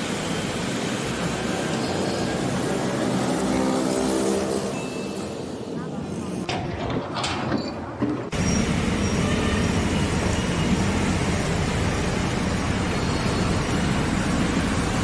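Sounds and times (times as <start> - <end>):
engine low rumble: 8.3 - 15.0.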